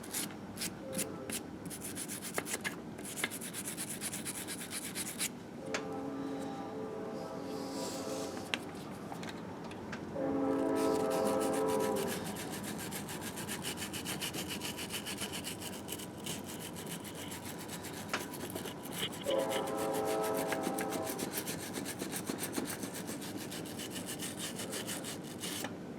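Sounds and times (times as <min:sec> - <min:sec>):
brush scrubbing engine case: 0:01.7 - 0:05.3, 0:10.7 - 0:25.7
steady horn-like tone: 0:05.6 - 0:08.6, 0:10.1 - 0:12.3, 0:19.2 - 0:21.2.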